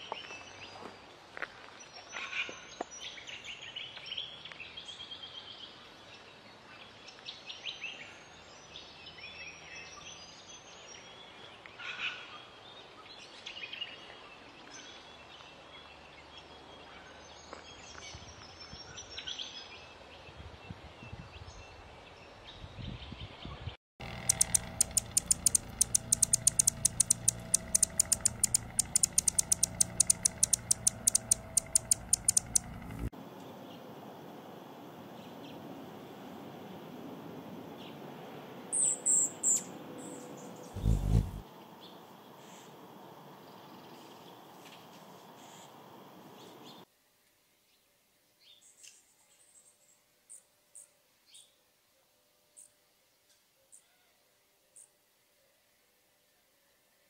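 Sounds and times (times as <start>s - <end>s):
low hum: 24.0s - 33.1s, 40.8s - 41.4s
sharp high ticks: 24.0s - 33.1s, 40.8s - 41.4s
small birds chirping: 24.0s - 33.1s, 38.8s - 42.7s.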